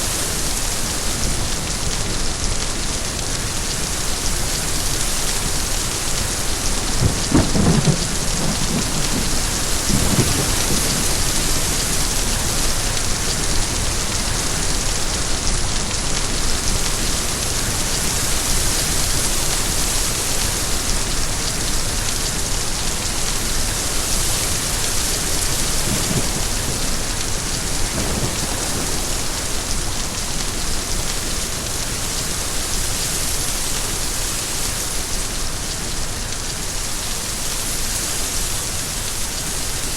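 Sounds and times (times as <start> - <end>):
steady rain falling: 0.0 - 39.9
low rolls of thunder: 6.8 - 14.0, 25.0 - 31.8.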